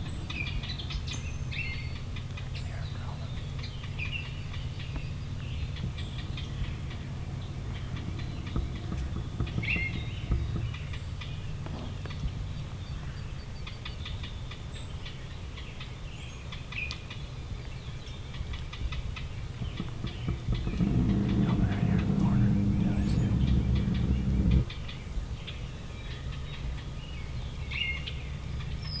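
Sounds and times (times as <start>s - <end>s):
faint songbird chirps: 0.0s - 29.0s
low rumble: 19.6s - 24.8s.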